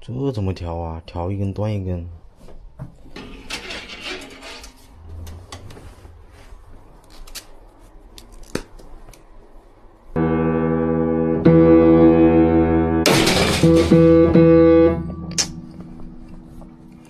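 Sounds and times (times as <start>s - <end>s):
piano notes: 10.2s - 17.0s
sharp noisy crash: 10.2s - 17.0s.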